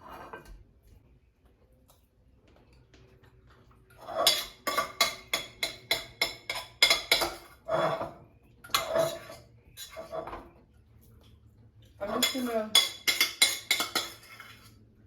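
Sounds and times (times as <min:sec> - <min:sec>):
metal spoon scraping a pot: 0:00.0 - 0:00.6, 0:03.9 - 0:10.6, 0:12.0 - 0:15.0.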